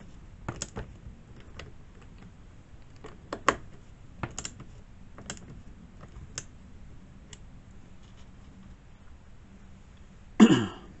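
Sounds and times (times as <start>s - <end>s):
tools clicking and tapping: 0.5s - 6.5s.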